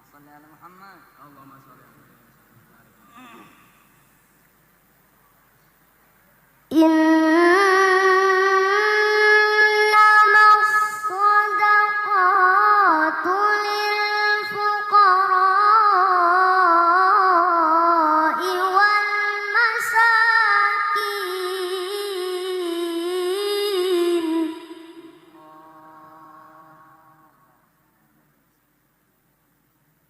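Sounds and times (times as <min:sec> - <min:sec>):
child reciting melodically: 0:06.7 - 0:27.3.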